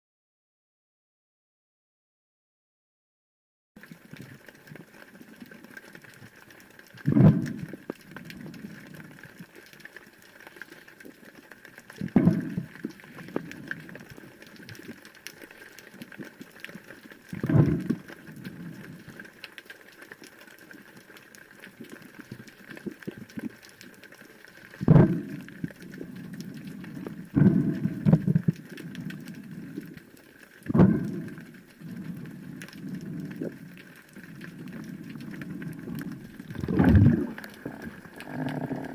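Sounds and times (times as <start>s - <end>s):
bubbling gurgling bursts: 7.0s - 9.2s, 12.0s - 14.2s, 17.3s - 19.1s, 24.8s - 38.9s
low underwater hiss: 10.3s - 15.0s, 23.8s - 38.9s.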